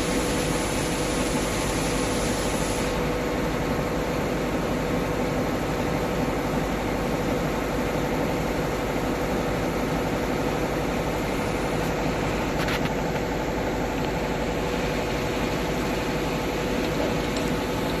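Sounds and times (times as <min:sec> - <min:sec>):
grinding machine humming: 0:00.0 - 0:05.6, 0:09.3 - 0:18.0.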